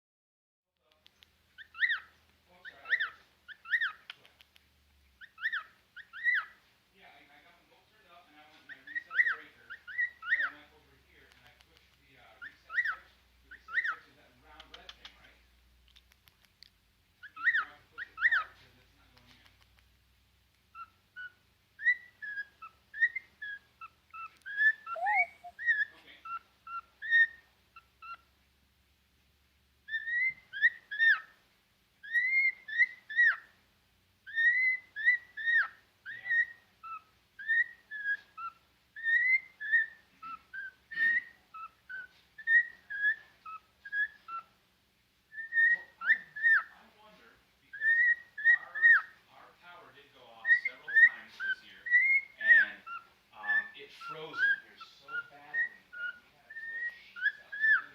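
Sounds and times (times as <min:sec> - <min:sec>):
cockatiel whistling: 0:20.7 - 0:28.2, 0:29.9 - 0:31.4, 0:32.0 - 0:33.5, 0:34.3 - 0:44.5, 0:45.3 - 0:46.7, 0:47.7 - 0:49.2, 0:50.4 - 0:57.9.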